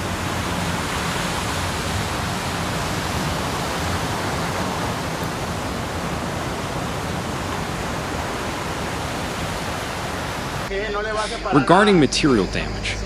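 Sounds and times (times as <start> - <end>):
water rushing: 0.0 - 13.0.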